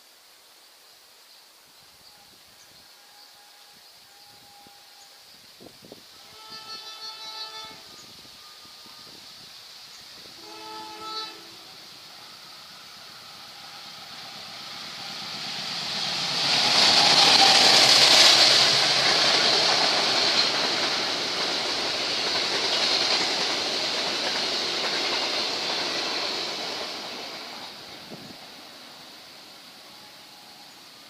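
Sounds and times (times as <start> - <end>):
diesel train passing at speed: 2.7 - 31.0
wheels rushing on rails: 7.6 - 31.0.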